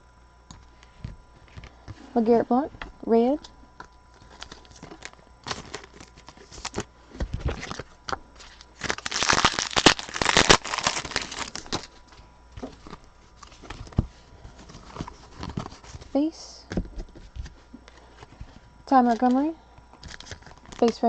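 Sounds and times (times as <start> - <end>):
wrapper crinkling and tearing: 4.2 - 14.0, 20.0 - 21.0.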